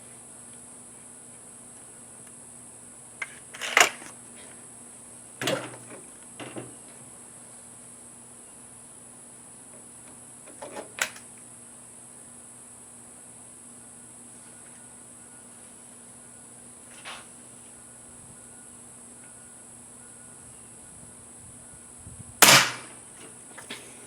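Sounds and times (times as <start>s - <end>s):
air rifle shot: 22.4s - 23.0s.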